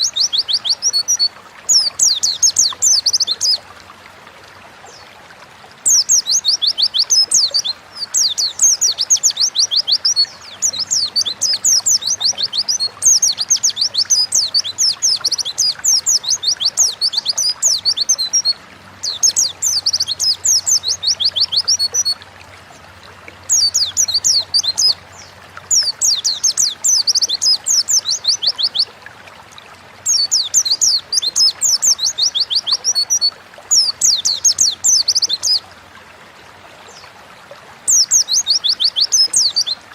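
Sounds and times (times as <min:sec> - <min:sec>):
bird chirping: 0:05.9 - 0:22.2, 0:23.5 - 0:28.9.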